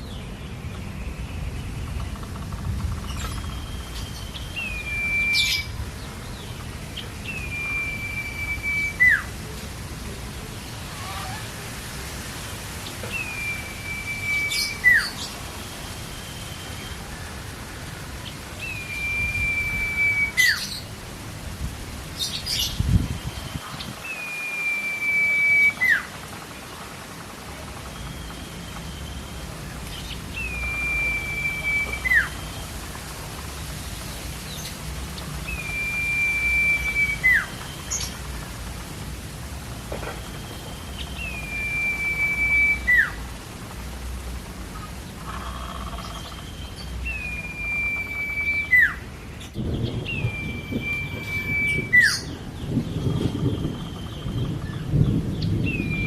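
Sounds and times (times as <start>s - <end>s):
bird whistling song: 0.0s - 6.6s, 7.2s - 9.3s, 13.0s - 17.2s, 18.2s - 20.9s, 22.2s - 26.1s, 27.8s - 32.7s, 35.4s - 38.2s, 40.2s - 43.2s, 45.6s - 56.0s
steady hiss: 0.0s - 56.0s.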